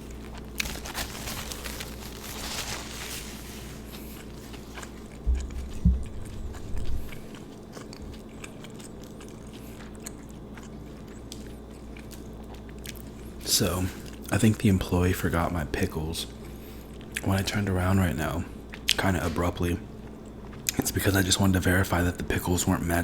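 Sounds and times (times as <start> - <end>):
chewing and biting sandwich: 0.0 - 14.3
low thumps: 5.2 - 7.0.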